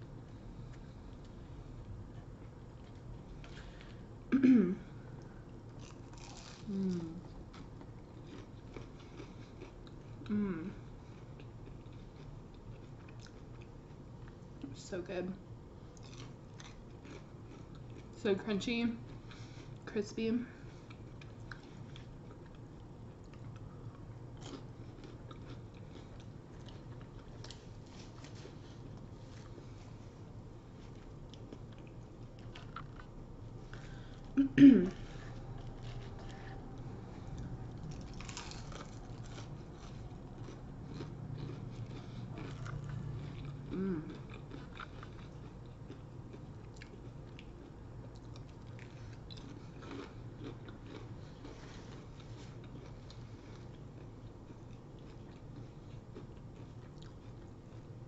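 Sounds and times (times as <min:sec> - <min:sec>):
faint low hum: 0:00.0 - 0:58.0
chewing crunchy onion rings: 0:05.0 - 0:34.4, 0:35.0 - 0:58.0.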